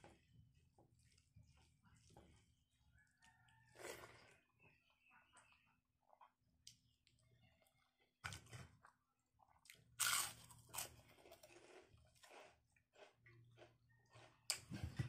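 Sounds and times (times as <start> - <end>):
person chewing crunchy food: 8.3 - 15.0.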